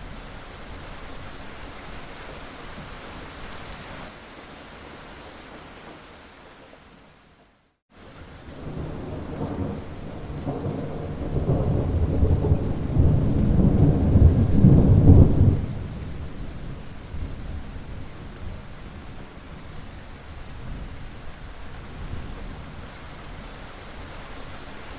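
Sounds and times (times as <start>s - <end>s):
rain falling: 0.0s - 24.9s
thunder rolling: 8.5s - 16.5s.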